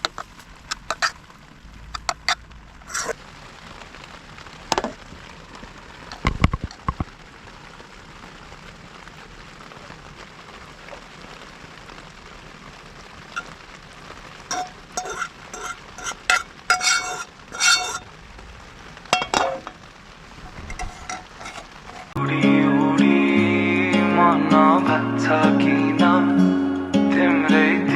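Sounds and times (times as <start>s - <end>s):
rain hissing: 0.0s - 27.9s
metal cookware clinking: 2.0s - 3.1s, 14.5s - 18.0s, 19.2s - 19.8s, 20.7s - 22.2s.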